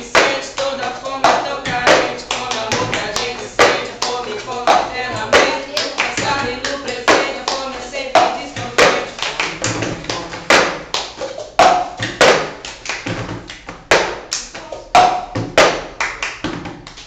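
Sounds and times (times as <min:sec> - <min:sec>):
voices singing: 0:00.0 - 0:12.2
hand claps: 0:00.0 - 0:17.0.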